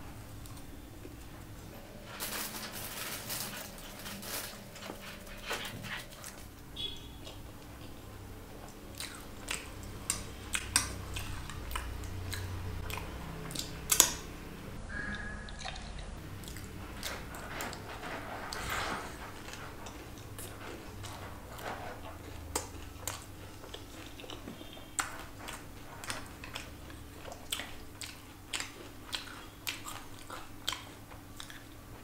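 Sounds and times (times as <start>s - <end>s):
person chewing crisp food: 3.3s - 14.2s, 15.6s - 18.2s, 19.3s - 32.0s
wet mouth clicks: 9.0s - 14.2s.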